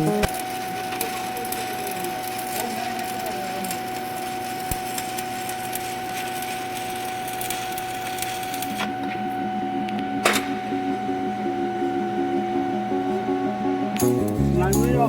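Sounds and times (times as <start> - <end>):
welding arc crackling and sizzling: 0.0 - 9.3
thin steady whine: 0.0 - 15.0.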